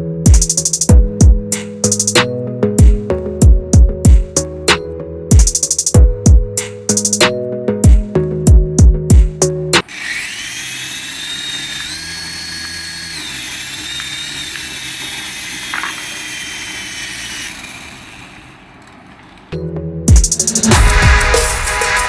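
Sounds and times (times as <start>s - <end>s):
toy electric motor whirring: 9.8s - 19.6s.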